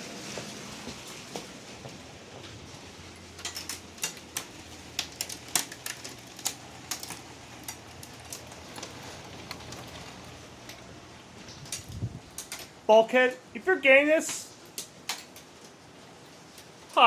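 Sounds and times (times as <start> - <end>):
steady hiss: 0.0 - 17.0
hailstones striking hard surface: 2.5 - 12.9, 14.2 - 17.0.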